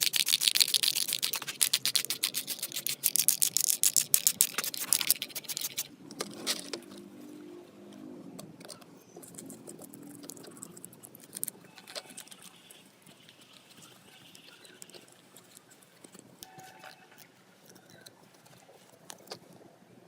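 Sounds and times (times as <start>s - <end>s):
small metal parts clicking: 0.0s - 7.0s.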